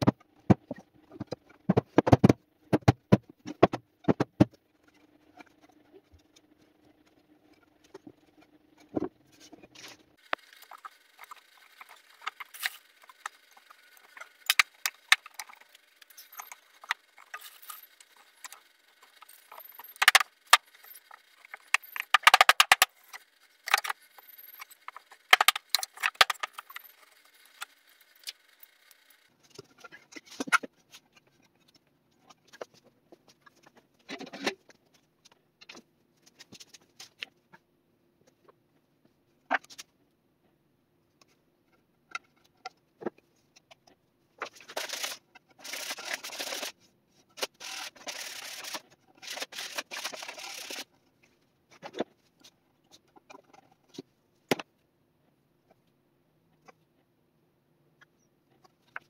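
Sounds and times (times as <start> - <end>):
wooden boards clicking and knocking: 0.0 - 4.6, 21.7 - 22.9.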